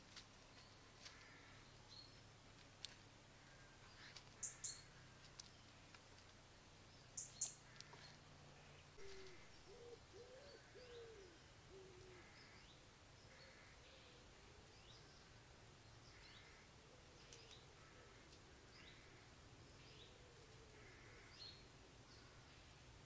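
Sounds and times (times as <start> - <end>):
bird hooting call: 9.0 - 12.6.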